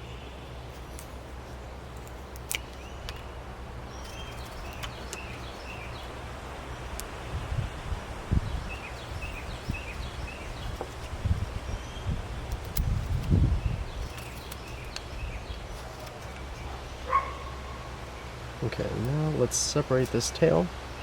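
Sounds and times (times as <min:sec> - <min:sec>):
small birds chirping: 0:00.0 - 0:21.0
wind buffeting microphone: 0:03.8 - 0:16.8
sharp clicks: 0:04.0 - 0:05.8, 0:12.4 - 0:13.4.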